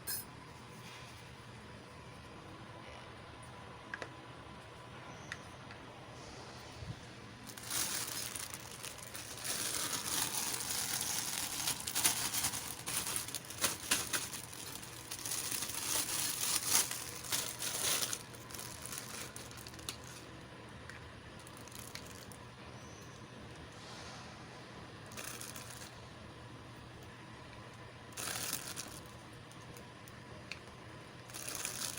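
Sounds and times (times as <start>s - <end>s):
packaging crinkling and tearing: 7.5s - 20.3s, 21.4s - 22.4s, 25.1s - 25.9s, 28.2s - 29.2s, 31.3s - 31.9s.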